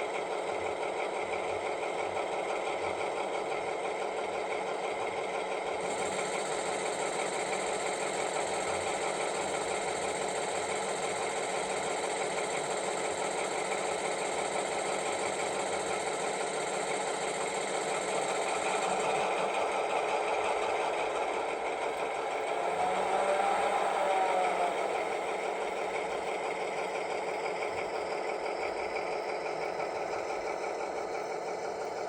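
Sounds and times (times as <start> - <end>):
model locomotive diesel engine sound: 0.0 - 32.0
thin high whine: 18.0 - 27.0.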